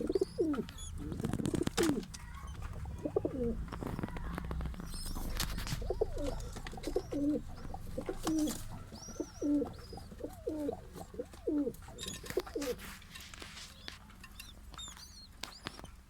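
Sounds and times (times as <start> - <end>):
pigeons cooing: 0.0 - 12.8
faint high chirps: 5.9 - 10.8.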